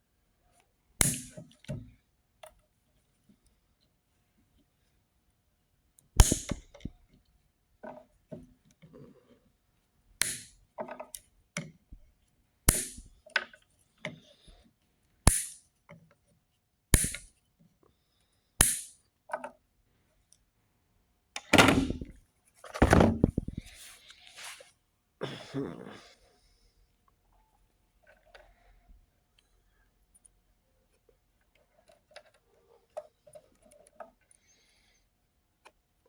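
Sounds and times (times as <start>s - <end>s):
wire cutters snipping wires: 1.0s - 1.4s, 6.2s - 6.9s, 10.2s - 10.6s, 12.7s - 13.2s, 15.3s - 15.6s, 17.0s - 17.3s, 18.6s - 18.9s
scraping sounds: 23.2s - 24.7s.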